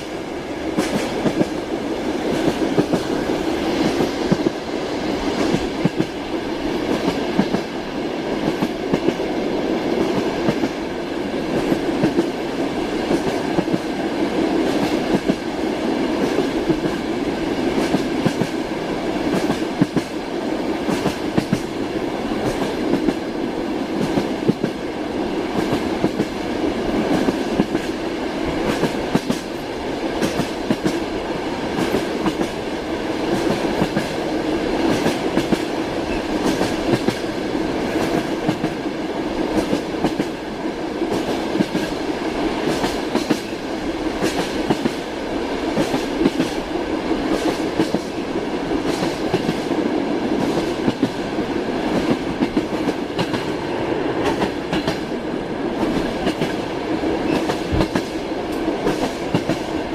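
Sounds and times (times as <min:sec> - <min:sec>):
train wheels clacking: 0:00.0 - 0:09.3, 0:09.9 - 0:10.8, 0:16.1 - 0:23.3, 0:24.0 - 0:24.9, 0:25.6 - 0:31.1, 0:31.7 - 0:32.6, 0:33.2 - 0:38.9, 0:39.5 - 0:40.5, 0:42.6 - 0:45.1, 0:45.7 - 0:48.2, 0:48.8 - 0:49.8, 0:50.4 - 0:55.2, 0:55.8 - 0:59.8
train rumble: 0:00.0 - 0:59.9.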